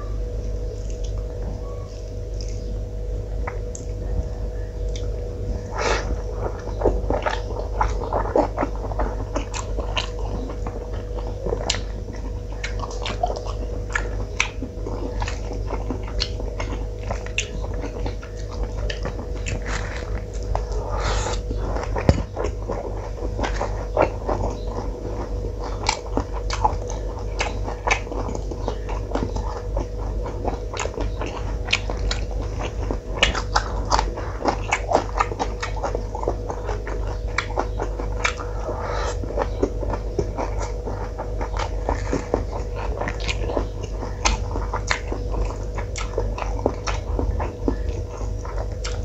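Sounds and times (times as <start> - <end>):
person chewing food: 0.0 - 49.0
steady low hum: 0.0 - 49.0.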